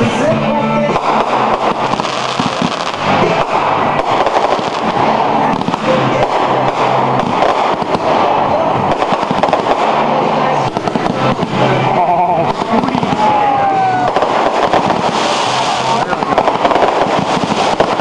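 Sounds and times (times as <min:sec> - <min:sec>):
fireworks crackling and popping: 0:00.0 - 0:18.0.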